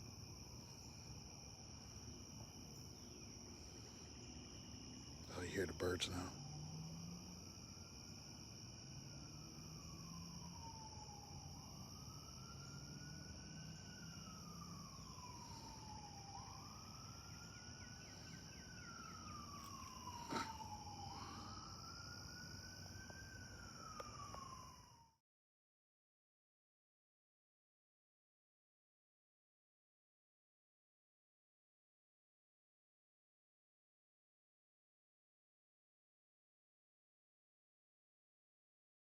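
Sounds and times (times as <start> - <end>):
night insects chirring: 0.0 - 25.1
faint siren wailing: 0.2 - 25.2.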